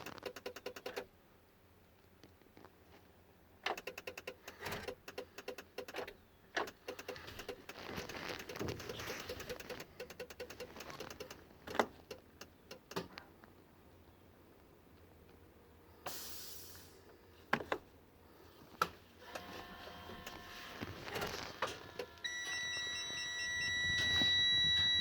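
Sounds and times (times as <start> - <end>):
rapid electrical clicking: 0.0 - 1.1, 3.7 - 13.2
faint steady buzz: 6.7 - 25.0.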